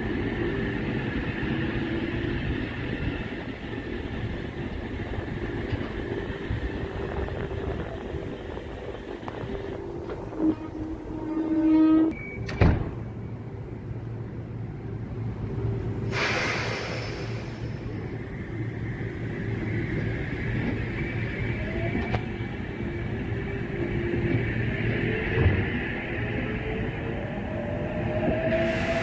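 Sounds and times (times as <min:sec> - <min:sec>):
stationary train humming: 0:00.0 - 0:29.0
air hissing: 0:16.0 - 0:18.0, 0:28.5 - 0:29.0.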